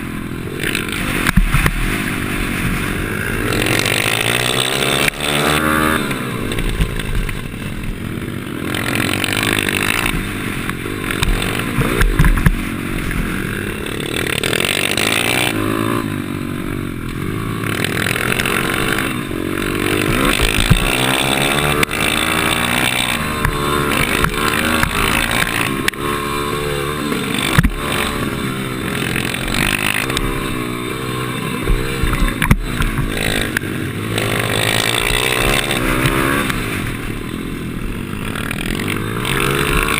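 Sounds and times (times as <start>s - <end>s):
pit bike engine revving: 0.0s - 39.9s
sharp knocks: 20.1s - 21.1s, 27.4s - 28.1s.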